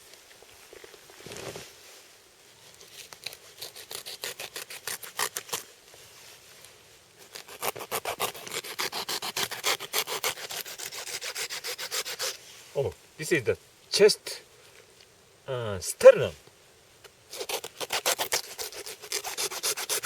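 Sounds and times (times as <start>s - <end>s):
soft rustle: 0.0s - 8.6s, 12.1s - 13.8s
knife scraping along rib bones: 3.0s - 5.6s, 7.3s - 12.4s, 17.3s - 20.0s.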